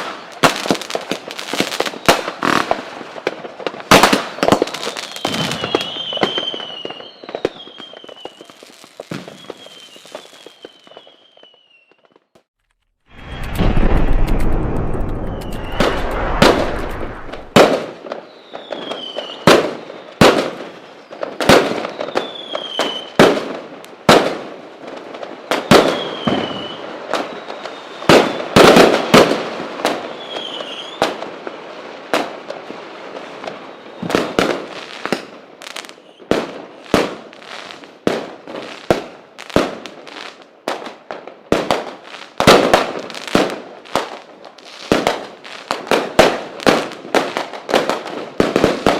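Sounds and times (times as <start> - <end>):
firework whistles falling in pitch: 4.4 - 12.4, 15.2 - 20.2, 21.0 - 23.2, 25.6 - 28.8, 30.1 - 31.1
firework bangs: 13.1 - 20.6, 41.5 - 44.2.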